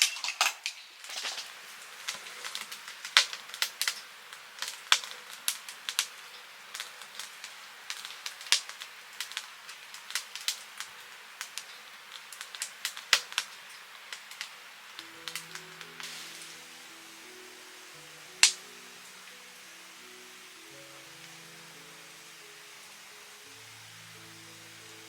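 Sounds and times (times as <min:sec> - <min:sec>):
faint steady hiss: 0:00.0 - 0:25.0
firewood crackling: 0:00.0 - 0:25.0.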